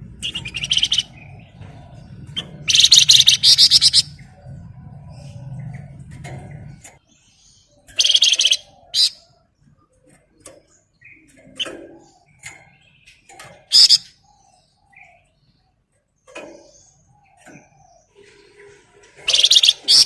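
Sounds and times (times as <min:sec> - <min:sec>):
rapid rattling bird trill: 0:00.0 - 0:04.5, 0:05.2 - 0:20.0
songbird singing: 0:00.0 - 0:20.0
faint bird chirps and whistles: 0:00.2 - 0:01.6, 0:02.3 - 0:05.7, 0:10.1 - 0:15.6, 0:16.3 - 0:20.0.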